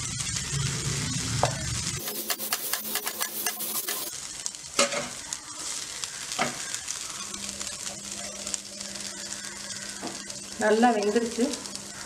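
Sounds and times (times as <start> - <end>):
potato sizzling in oil: 0.0 - 12.0
spatula scraping a pan: 2.0 - 4.1.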